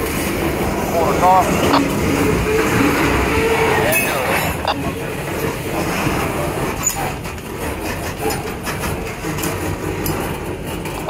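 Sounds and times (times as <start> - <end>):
clicks and knocks of freight cars: 0.0 - 11.0
steel wheels running on rails: 0.0 - 11.0
high wheel squeak: 1.5 - 9.4.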